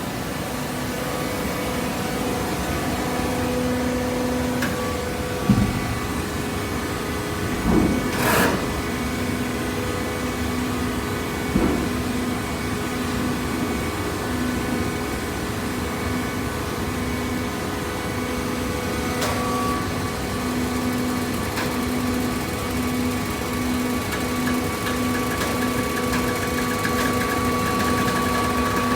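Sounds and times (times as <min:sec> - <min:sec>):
baler machine hum: 0:19.2 - 0:28.9.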